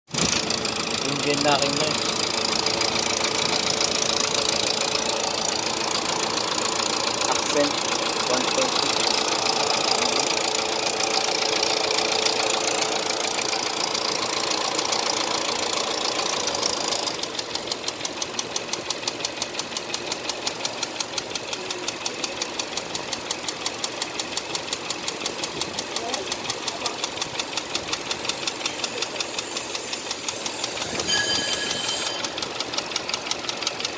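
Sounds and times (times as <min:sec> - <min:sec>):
car engine running: 0:00.1 - 0:33.9
sharp engine knocking: 0:00.1 - 0:33.9.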